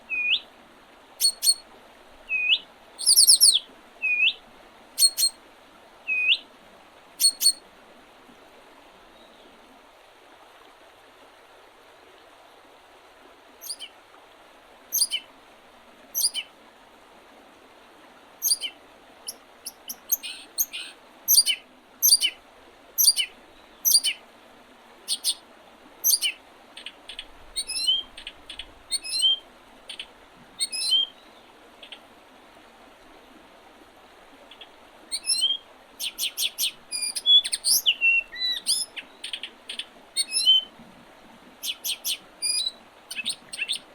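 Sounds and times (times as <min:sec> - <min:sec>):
small songbirds chirping: 0:00.0 - 0:00.4, 0:01.2 - 0:01.6, 0:02.3 - 0:04.4, 0:05.0 - 0:05.4, 0:06.1 - 0:06.4, 0:07.2 - 0:07.6, 0:13.6 - 0:13.9, 0:14.9 - 0:15.3, 0:16.2 - 0:16.5, 0:18.4 - 0:22.4, 0:23.0 - 0:24.2, 0:25.1 - 0:25.4, 0:26.0 - 0:32.0, 0:34.5 - 0:40.7, 0:41.6 - 0:43.9
soft background hiss: 0:00.0 - 0:43.9.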